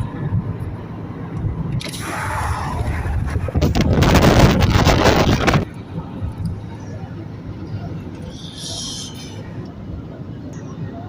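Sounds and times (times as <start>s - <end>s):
steady low rumble: 0.0s - 11.0s
rain and wind rushing: 1.5s - 5.7s.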